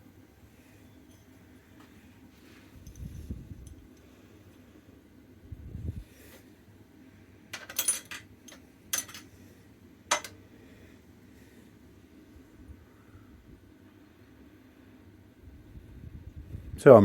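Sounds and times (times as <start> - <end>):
metal parts clinking: 7.6 - 9.3, 10.1 - 10.4.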